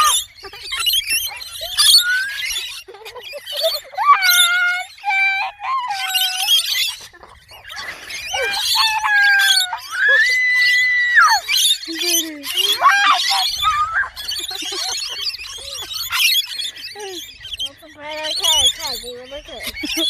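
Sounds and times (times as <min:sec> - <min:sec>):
birds whistling: 0:00.0 - 0:20.0
high-pitched bird chatter: 0:00.0 - 0:20.0.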